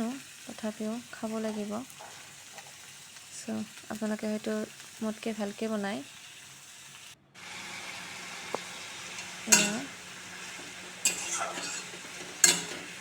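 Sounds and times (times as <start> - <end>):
greens sizzling in oil: 0.0 - 13.0
spatula scraping a pan: 8.4 - 13.0.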